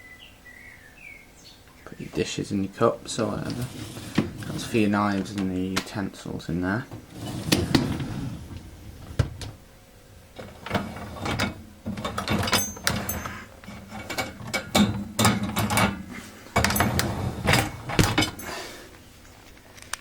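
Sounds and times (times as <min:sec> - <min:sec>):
dishwasher racks rattling: 0:03.2 - 0:09.6, 0:10.4 - 0:18.6.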